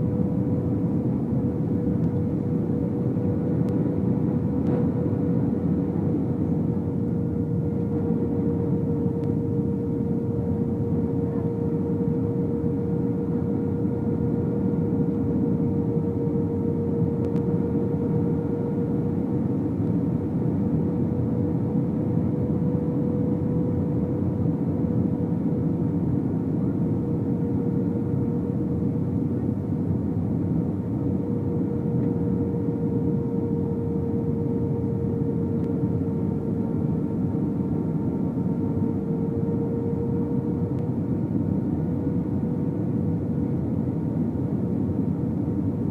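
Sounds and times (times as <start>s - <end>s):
aircraft engines and airflow rushing: 0.0s - 45.9s
constant droning hum: 0.0s - 45.9s.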